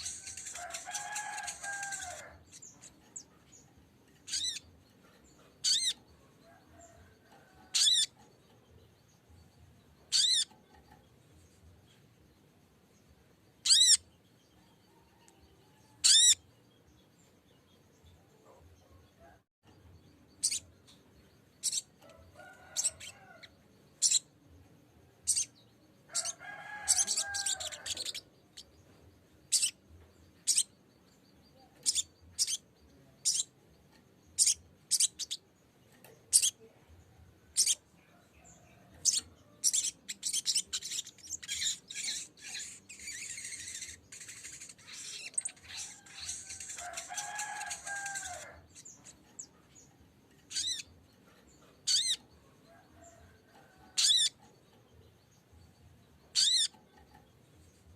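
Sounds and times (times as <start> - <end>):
bird calling with chip notes: 56.3 - 56.8.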